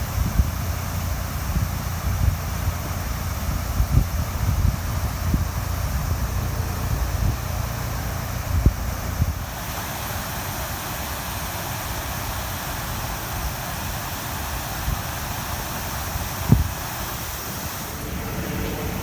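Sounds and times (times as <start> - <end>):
wind buffeting microphone: 0.0 - 9.7, 11.8 - 19.0
river rushing: 5.6 - 19.0.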